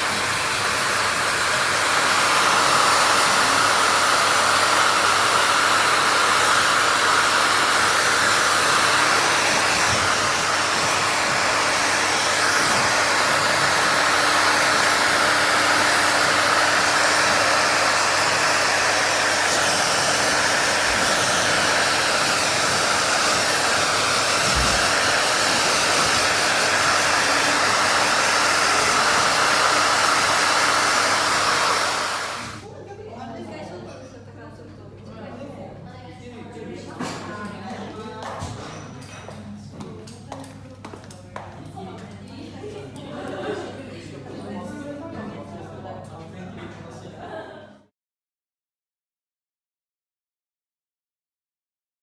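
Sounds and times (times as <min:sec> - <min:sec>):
hair dryer blowing: 0:00.0 - 0:32.7.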